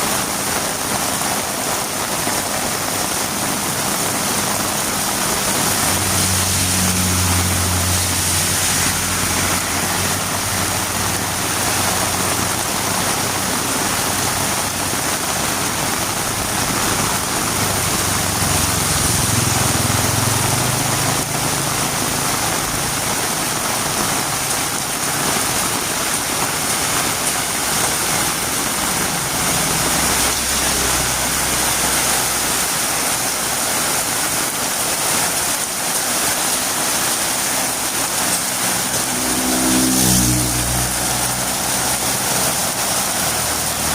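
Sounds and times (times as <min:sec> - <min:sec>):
heavy rain on a road: 0:00.0 - 0:43.9.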